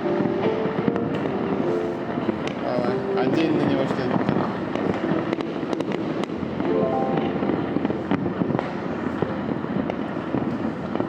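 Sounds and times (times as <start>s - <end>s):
fireworks crackling and popping: 0.0s - 11.0s.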